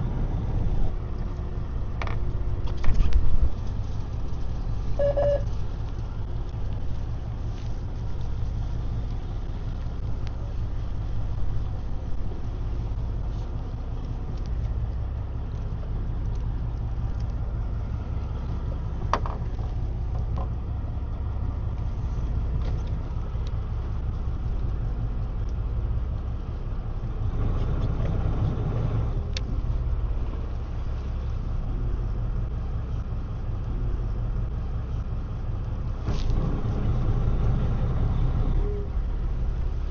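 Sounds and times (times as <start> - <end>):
boat engine droning: 0.0 - 39.9
isolated clicks and knocks: 19.1 - 20.6.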